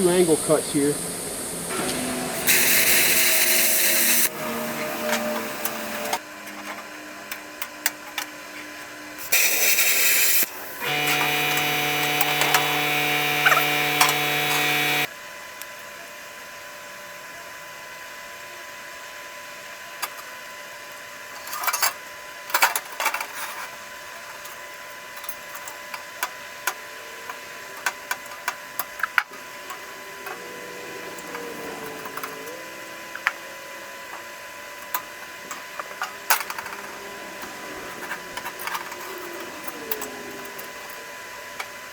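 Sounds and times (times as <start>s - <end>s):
power tool cutting steel: 1.5s - 6.2s, 9.2s - 15.1s, 28.8s - 41.8s.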